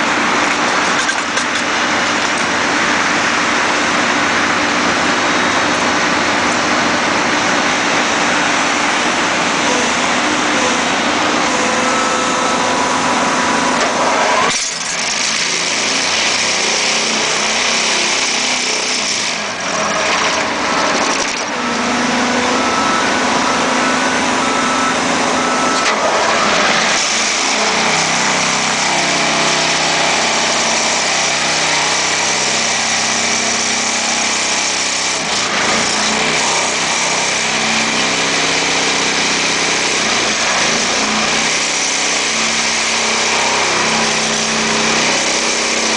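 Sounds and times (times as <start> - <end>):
pile hammer mechanical din: 0.0 - 7.4, 8.0 - 24.6.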